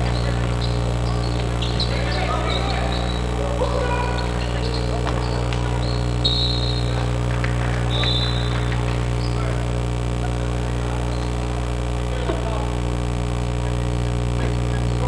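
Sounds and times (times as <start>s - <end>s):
sneakers squeaking: 0.0s - 12.9s
electrical mains hum: 0.0s - 15.0s.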